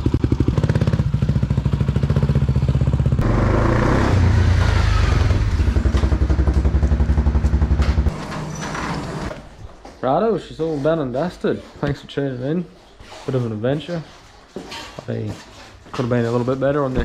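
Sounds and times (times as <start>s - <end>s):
motorcycle engine running: 0.0s - 8.1s.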